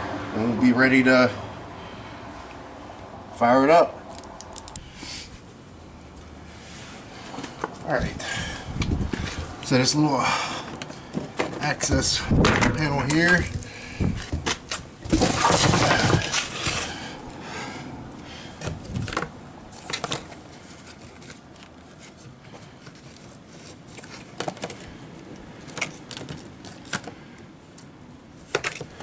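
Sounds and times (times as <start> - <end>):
plastic panel scraping rattle: 11.2 - 17.0.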